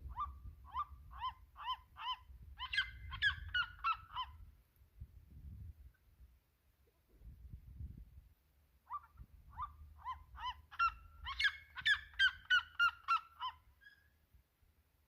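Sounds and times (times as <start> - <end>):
bird yelping calls: 0.1 - 4.4, 8.9 - 14.1.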